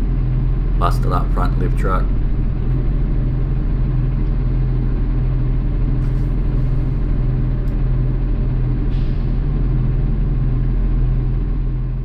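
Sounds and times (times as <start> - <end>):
diesel engine idling: 0.0 - 8.5.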